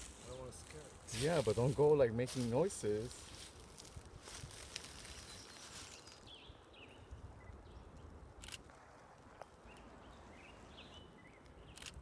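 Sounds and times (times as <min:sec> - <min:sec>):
faint bird chirps: 0:05.0 - 0:08.6.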